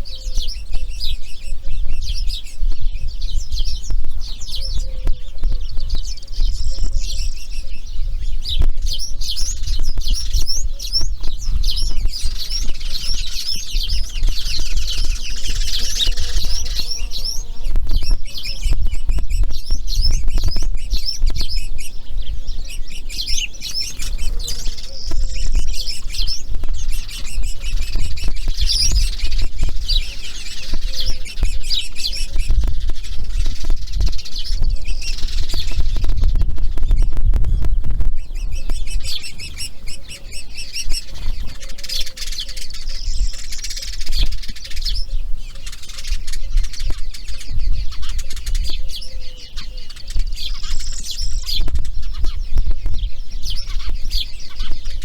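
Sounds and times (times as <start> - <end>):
birds chirping rapidly: 0.0 - 55.0
steady low rumble: 23.8 - 41.5.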